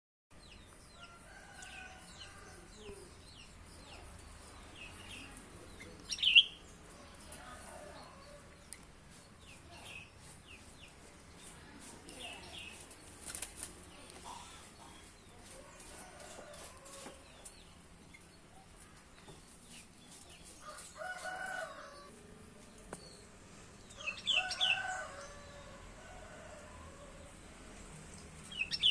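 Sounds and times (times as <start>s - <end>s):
bird chirping: 1.6s - 6.8s, 22.9s - 25.7s, 28.1s - 28.9s.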